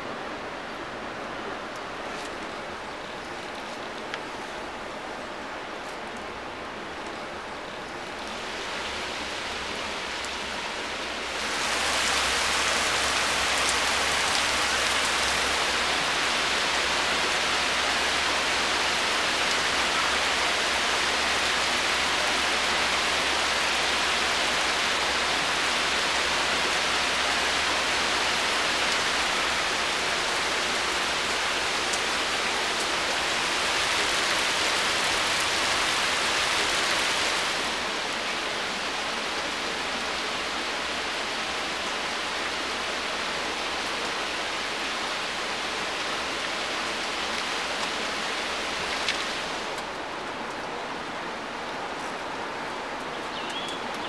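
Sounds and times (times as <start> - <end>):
heavy rain on water and leaves: 0.0 - 54.0.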